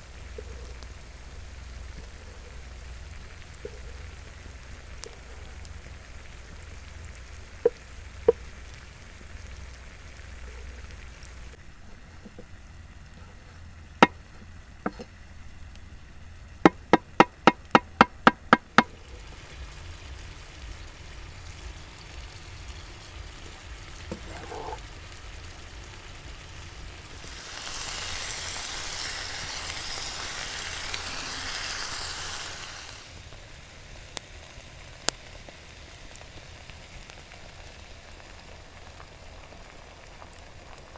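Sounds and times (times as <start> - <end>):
steady hissing: 0.0 - 40.9
sharp knocks: 16.7 - 18.9.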